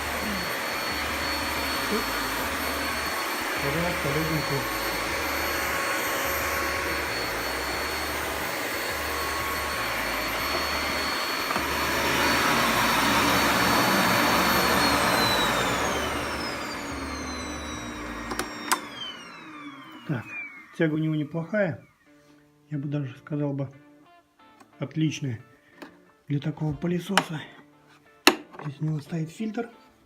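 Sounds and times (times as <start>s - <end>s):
vacuum cleaner running: 0.0s - 21.6s.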